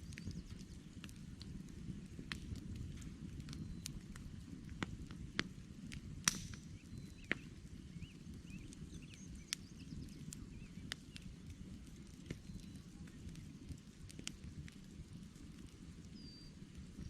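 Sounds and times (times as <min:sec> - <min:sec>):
logs popping and crackling: 0:00.0 - 0:17.0
low rumble of flames: 0:00.0 - 0:17.0
faint bird chirps: 0:06.8 - 0:11.5, 0:16.1 - 0:17.0.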